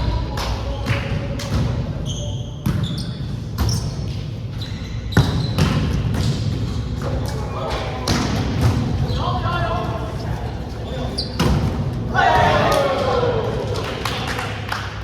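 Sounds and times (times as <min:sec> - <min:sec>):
volleyballs struck and bouncing: 0:00.3 - 0:02.0, 0:05.2 - 0:09.2, 0:11.4 - 0:13.3.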